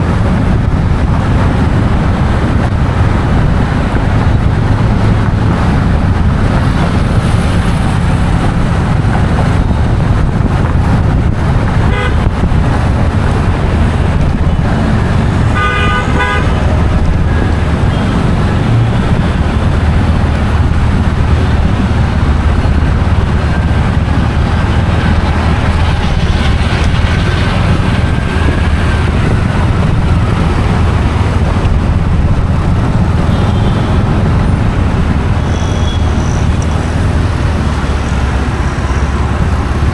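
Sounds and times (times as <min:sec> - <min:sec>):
road traffic rumble: 0:00.0 - 0:39.9
vehicle horns honking: 0:11.8 - 0:12.4, 0:15.4 - 0:19.3, 0:33.2 - 0:34.4, 0:35.4 - 0:36.6.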